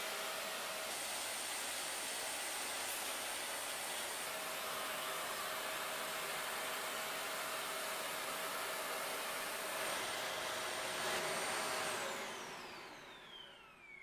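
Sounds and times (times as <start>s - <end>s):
vacuum cleaner running: 0.0s - 14.0s
motor whine spinning down: 9.3s - 14.0s.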